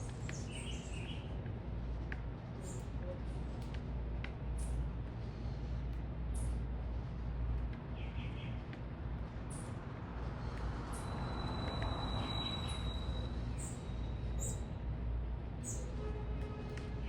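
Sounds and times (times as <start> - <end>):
small birds chirping: 0.0 - 1.3, 7.9 - 8.7
traffic rumble: 0.0 - 17.0.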